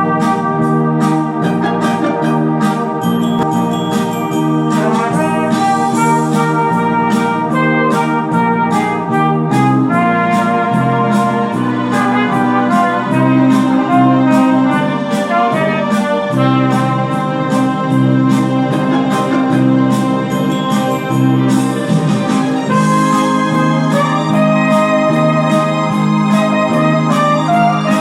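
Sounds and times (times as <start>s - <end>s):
accompaniment with steady beat: 0.0s - 28.0s
solo trumpet melody: 0.0s - 28.0s.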